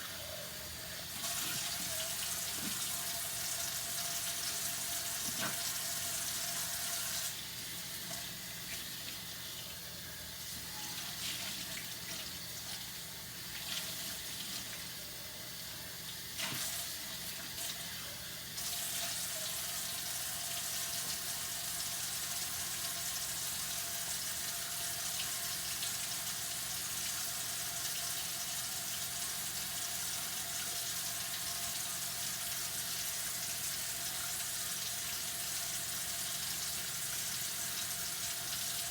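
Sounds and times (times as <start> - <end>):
tap water running into sink: 1.0 - 9.4, 18.6 - 38.9.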